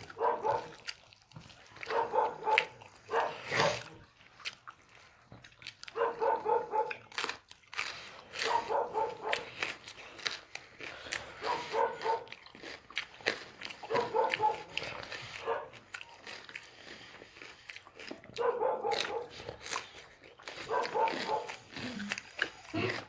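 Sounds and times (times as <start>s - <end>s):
dog grunting: 0.0s - 0.8s, 1.9s - 4.1s, 8.4s - 9.5s, 10.9s - 12.3s, 13.8s - 15.7s, 18.4s - 19.6s, 20.6s - 23.0s
dog chewing food: 0.0s - 23.0s.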